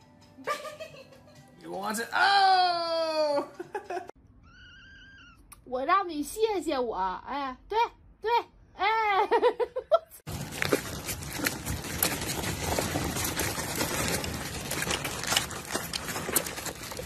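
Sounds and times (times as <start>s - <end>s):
plastic wheels rolling on asphalt: 10.3s - 17.0s.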